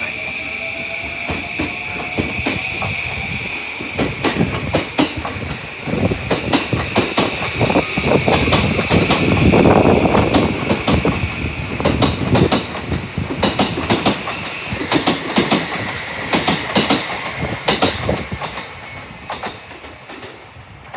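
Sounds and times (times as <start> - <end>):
train rumble: 0.0 - 20.9
wheels clacking over rail joints: 3.8 - 20.4.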